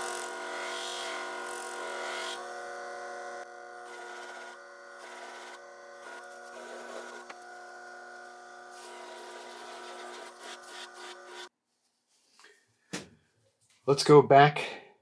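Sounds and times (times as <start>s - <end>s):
bench grinder motor hum: 0.0s - 11.5s.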